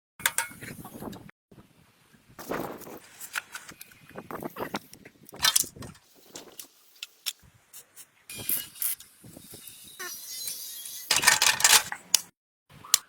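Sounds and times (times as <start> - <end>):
tools and metal parts clanking: 5.4 - 6.7, 10.4 - 12.3.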